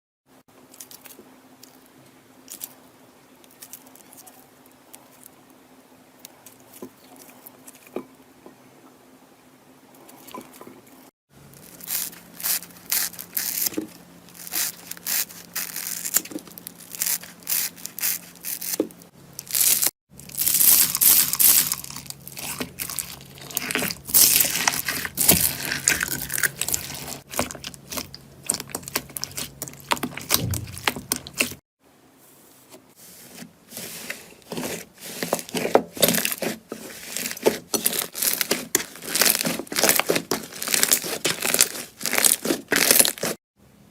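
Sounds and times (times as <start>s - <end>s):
slime crackling and popping: 19.4s - 31.6s, 36.0s - 43.4s.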